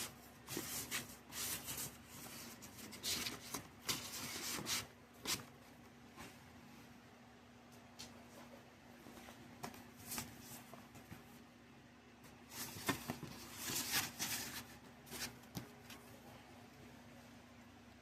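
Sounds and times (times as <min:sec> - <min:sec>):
faint steady hum: 0:00.0 - 0:18.0
record sleeves rustling and clicking: 0:12.3 - 0:16.1.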